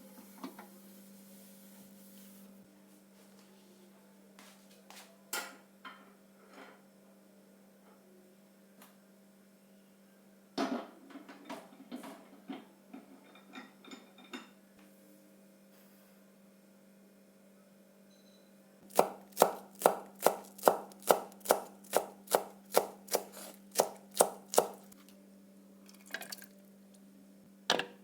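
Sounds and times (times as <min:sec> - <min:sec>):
dishes and utensils clinking: 0:11.2 - 0:14.6.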